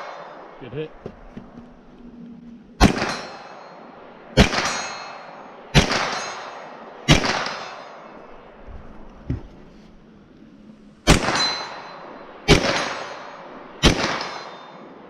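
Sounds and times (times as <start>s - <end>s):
gunshots with ringing tail: 2.8s - 8.6s, 11.0s - 15.0s.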